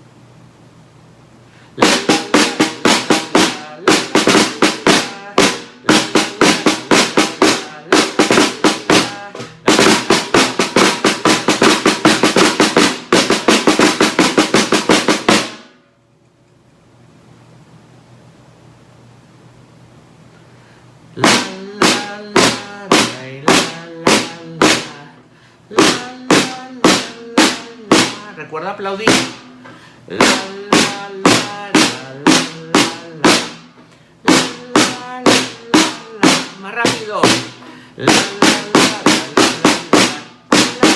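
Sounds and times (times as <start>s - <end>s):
pitched accompaniment: 1.8s - 15.8s, 21.2s - 40.9s
snare drum rolls: 1.8s - 15.8s, 21.2s - 40.9s.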